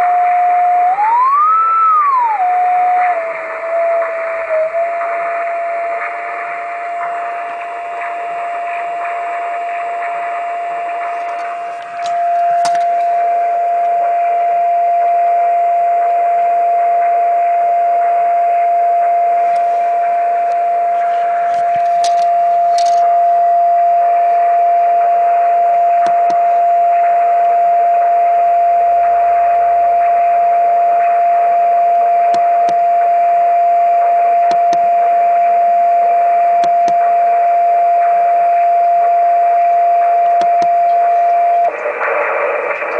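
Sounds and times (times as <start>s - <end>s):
receiver hiss: 0.0s - 42.9s
steady beat tone: 4.0s - 15.1s, 18.0s - 27.3s.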